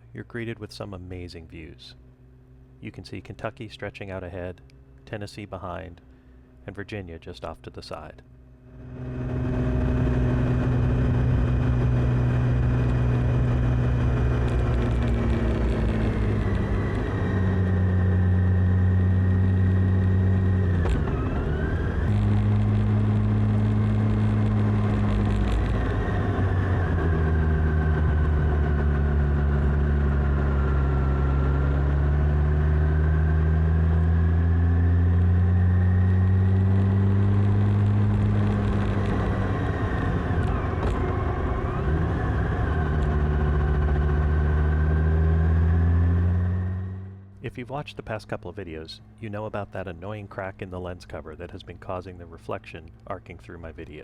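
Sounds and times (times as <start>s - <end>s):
motorcycle engine running: 21.6s - 47.4s.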